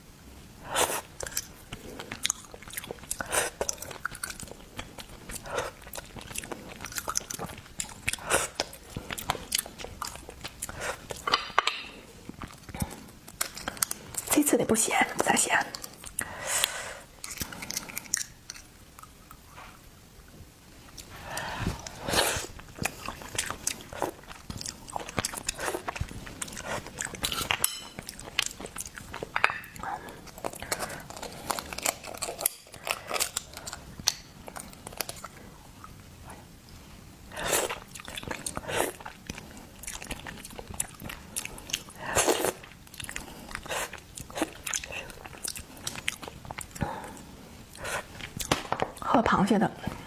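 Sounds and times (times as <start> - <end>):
person biting and chewing: 15.8 - 19.5, 20.9 - 29.4, 30.1 - 35.3, 37.4 - 49.0.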